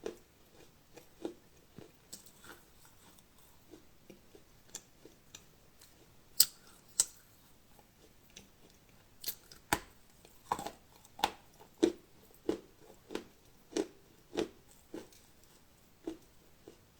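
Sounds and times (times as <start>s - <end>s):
crunchy chewing: 8.0s - 16.9s.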